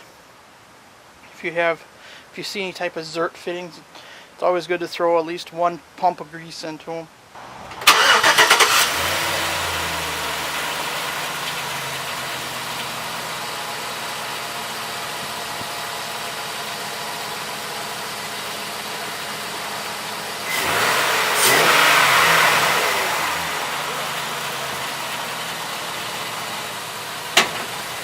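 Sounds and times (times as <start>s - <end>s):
truck engine idling: 7.4s - 28.0s.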